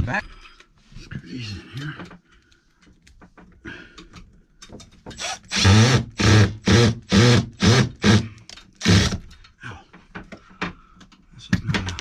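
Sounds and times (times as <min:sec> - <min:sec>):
cordless drill driving screw: 0:05.1 - 0:08.2, 0:08.8 - 0:09.3.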